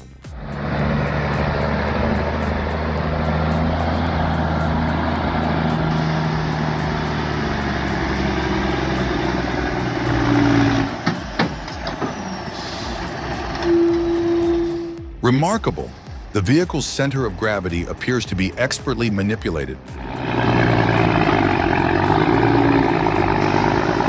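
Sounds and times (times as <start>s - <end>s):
short steady tone: 0.0s - 16.3s
heavy vehicle engine running: 0.0s - 24.0s.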